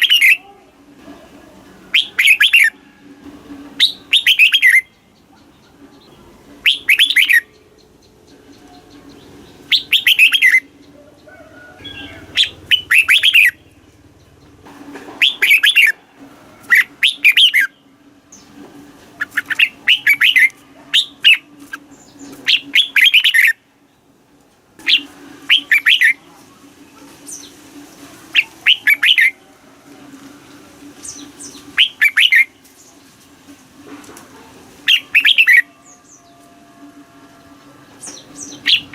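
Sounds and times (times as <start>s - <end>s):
bird singing warbling phrases: 0.0s - 0.5s, 1.9s - 2.8s, 3.8s - 14.6s, 15.2s - 16.0s, 16.6s - 17.8s, 19.2s - 23.6s, 24.8s - 26.3s, 28.3s - 29.4s, 31.0s - 32.9s, 34.8s - 36.5s, 37.4s - 38.9s
steady low hum: 0.0s - 25.5s.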